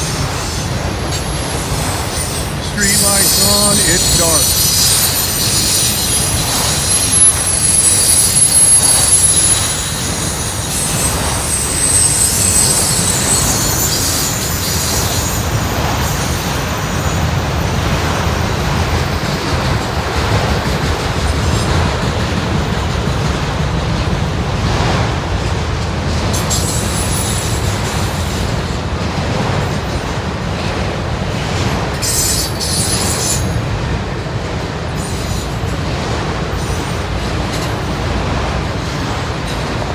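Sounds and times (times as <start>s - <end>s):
freight train wheels rumbling: 0.0s - 39.9s
wheel squeal: 4.0s - 17.8s.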